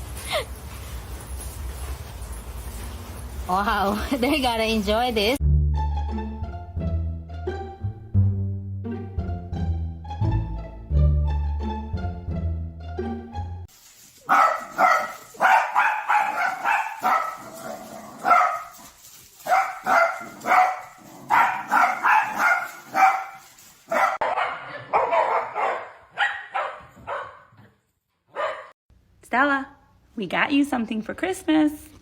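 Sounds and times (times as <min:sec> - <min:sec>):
dog barking and yipping: 0:14.2 - 0:27.7, 0:28.3 - 0:28.8.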